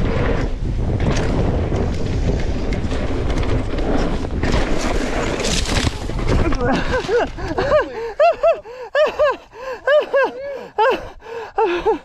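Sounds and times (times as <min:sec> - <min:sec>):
person gasping and groaning: 0:06.6 - 0:12.0.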